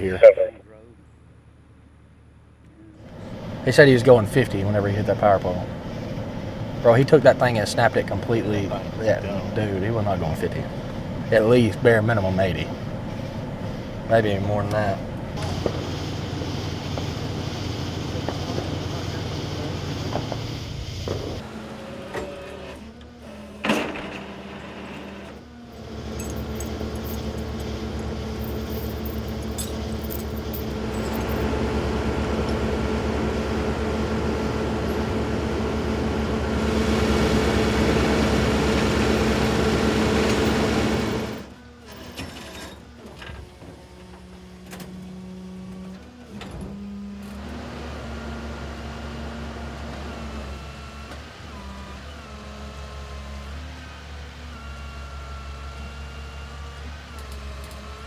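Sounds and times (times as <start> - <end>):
vehicle engine running: 0.0 - 22.1, 25.2 - 41.9.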